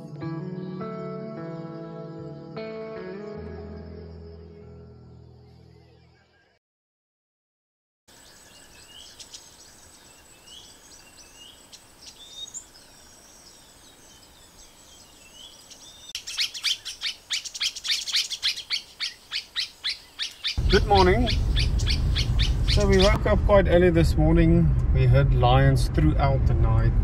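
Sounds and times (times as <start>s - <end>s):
wild birds chirping: 0.0s - 6.6s, 8.1s - 23.3s
rapid repeated bird chirps: 8.1s - 23.2s.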